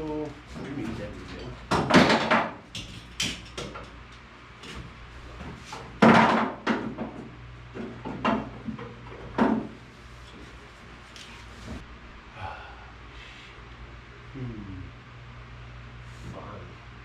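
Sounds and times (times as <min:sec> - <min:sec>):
hard objects knocking and clattering: 0:01.7 - 0:04.0, 0:06.0 - 0:09.8.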